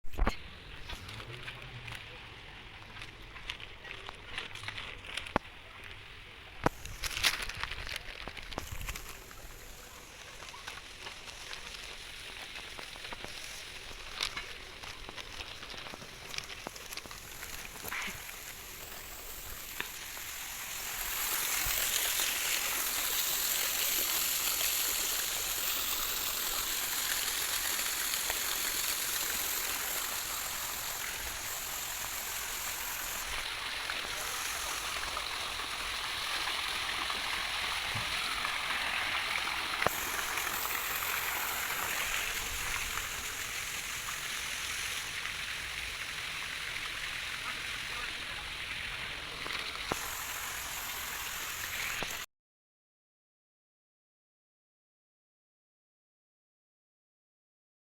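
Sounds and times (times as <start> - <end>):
stream water rushing: 8.7 - 52.2.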